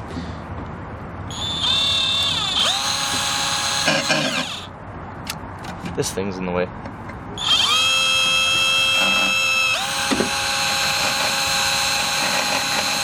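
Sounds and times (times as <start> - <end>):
electric drill whining: 1.3 - 4.7, 7.4 - 13.0.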